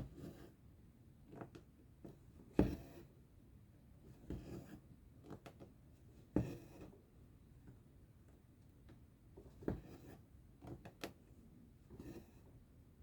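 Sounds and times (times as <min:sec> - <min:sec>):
needle and thread through fabric: 0:00.0 - 0:00.6, 0:01.3 - 0:03.2, 0:04.0 - 0:07.1.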